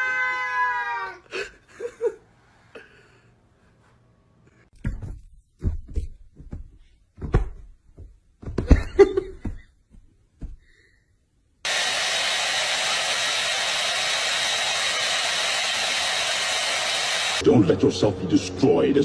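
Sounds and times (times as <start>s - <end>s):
knocks and thumps: 4.8s - 10.6s
rushing motor noise: 11.7s - 19.0s.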